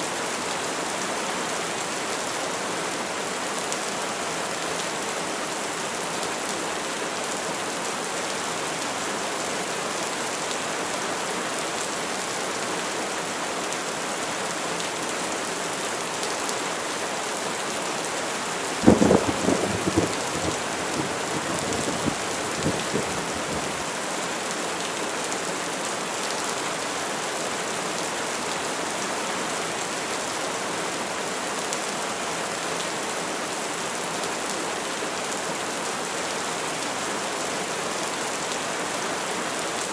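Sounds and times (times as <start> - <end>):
steady rain falling: 0.0 - 39.9
thunder crack and rumbles: 18.8 - 23.8.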